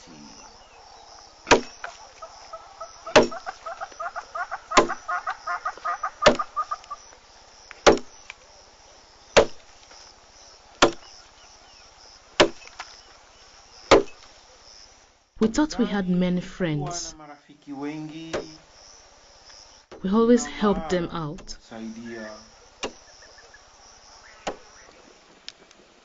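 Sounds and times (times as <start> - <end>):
chattering bird calls: 0.0 - 7.2, 17.9 - 26.0
axe chopping wood: 1.4 - 2.0, 3.1 - 3.6, 4.7 - 5.0, 6.2 - 6.5, 7.7 - 8.3, 9.4 - 9.7, 10.8 - 11.1, 12.4 - 12.9, 13.9 - 14.3, 22.8 - 23.0, 24.4 - 24.7.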